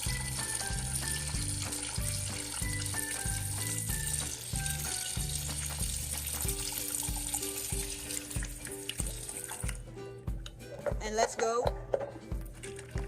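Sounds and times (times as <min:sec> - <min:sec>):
water running from a tap: 0:00.0 - 0:09.8, 0:12.5 - 0:13.0
background music with steady beat: 0:00.0 - 0:13.0.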